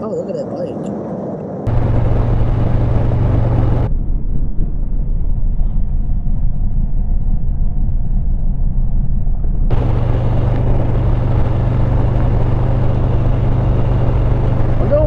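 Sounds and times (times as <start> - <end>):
wind noise: 0.0 - 15.0
motorcycle engine rumbling: 1.5 - 8.0, 9.7 - 15.0.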